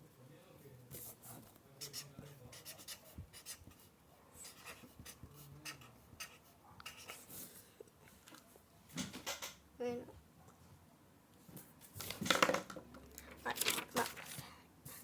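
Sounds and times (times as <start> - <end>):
pen scratching on paper: 0.9 - 7.4.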